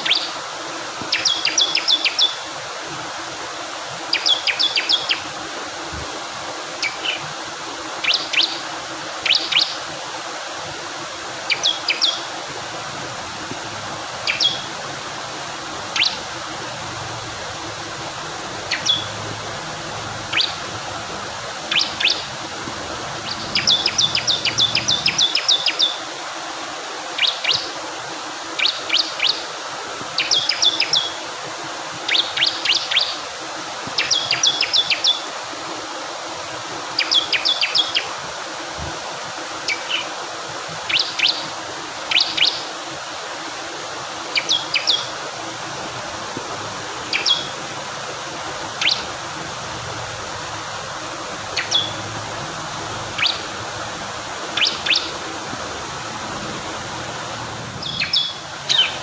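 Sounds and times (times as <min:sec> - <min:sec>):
rushing water: 0:00.0 - 0:59.0
bird singing high chips: 0:01.1 - 0:02.4, 0:06.8 - 0:07.2, 0:08.0 - 0:08.6, 0:11.5 - 0:12.3, 0:14.2 - 0:14.8, 0:15.9 - 0:16.3, 0:18.6 - 0:19.3, 0:20.2 - 0:20.7, 0:21.7 - 0:22.4, 0:23.2 - 0:26.1, 0:34.0 - 0:35.2, 0:47.1 - 0:47.6, 0:48.8 - 0:49.1, 0:51.5 - 0:52.1, 0:53.1 - 0:53.5, 0:54.6 - 0:55.2, 0:57.8 - 0:59.0.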